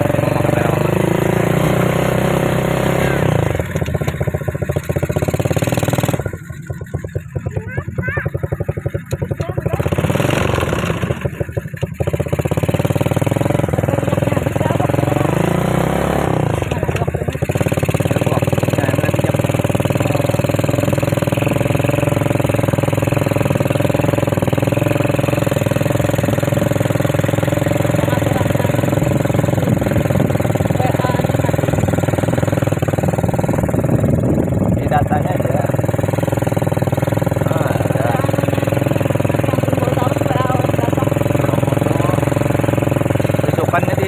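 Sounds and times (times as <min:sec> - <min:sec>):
atv engine running: 0:00.0 - 0:44.0.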